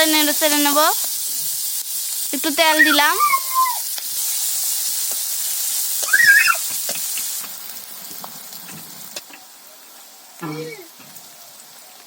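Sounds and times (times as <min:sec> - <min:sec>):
vegetables sizzling in hot oil: 0:00.0 - 0:12.0
short high-pitched call: 0:06.1 - 0:06.6.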